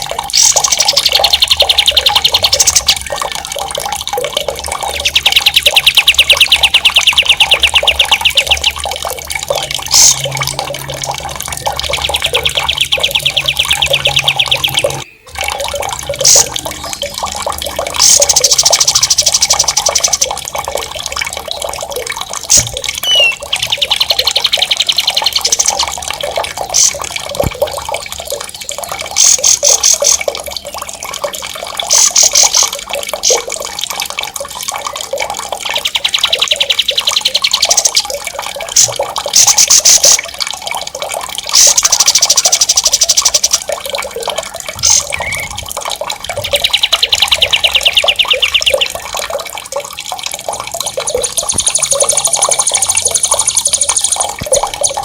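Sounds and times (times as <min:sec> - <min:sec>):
flowing water: 0:00.0 - 0:55.0
songbird trilling: 0:04.8 - 0:08.9, 0:11.7 - 0:15.4, 0:22.6 - 0:25.8, 0:44.8 - 0:45.6, 0:46.4 - 0:49.0.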